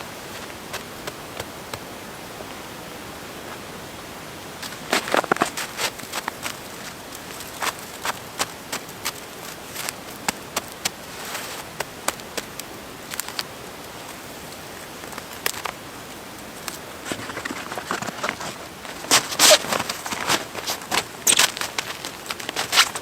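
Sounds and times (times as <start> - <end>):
steady hiss: 0.0 - 23.0
sharp clicks and crackles: 11.8 - 13.5.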